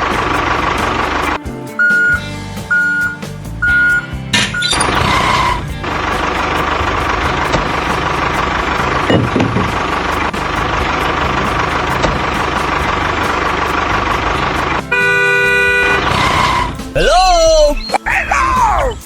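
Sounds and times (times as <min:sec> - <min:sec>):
horn-like steady tone: 0:14.9 - 0:16.9.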